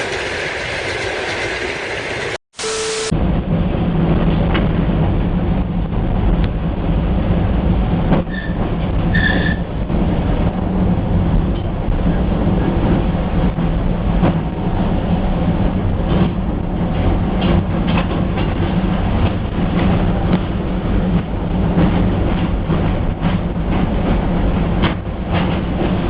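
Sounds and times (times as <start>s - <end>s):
train rolling rumble: 0.0s - 2.4s, 3.1s - 26.0s
high-pitched tones: 2.6s - 3.1s.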